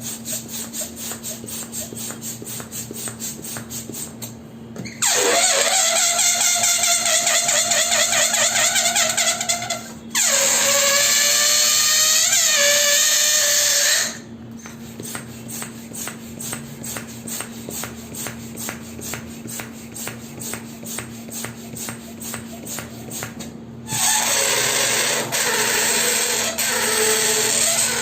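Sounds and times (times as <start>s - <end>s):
balloon squealing: 4.8s - 14.3s, 23.9s - 28.0s.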